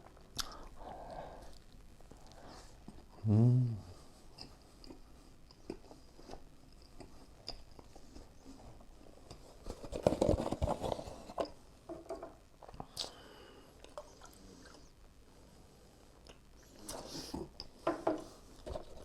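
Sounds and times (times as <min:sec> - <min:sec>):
person chewing: 0:00.2 - 0:02.4.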